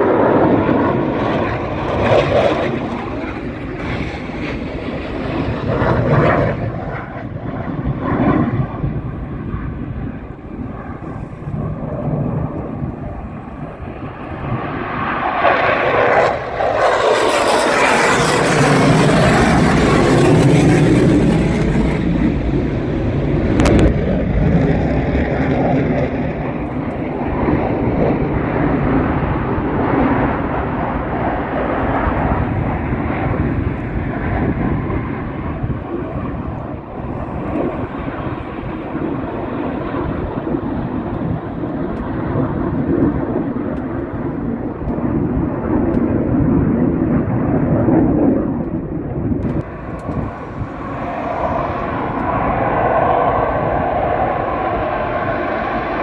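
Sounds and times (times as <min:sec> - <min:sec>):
low steady jet rumble: 0:00.0 - 0:56.0
jet engine hiss: 0:08.0 - 0:23.4, 0:49.6 - 0:56.0.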